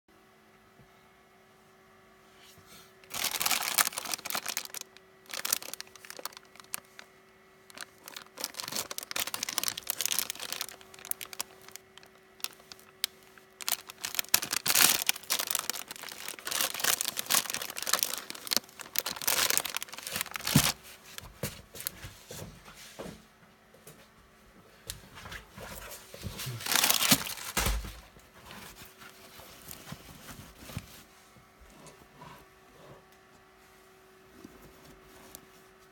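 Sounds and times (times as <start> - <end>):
parcel packaging tearing and crinkling: 3.0 - 7.1, 7.7 - 21.2, 26.4 - 28.0.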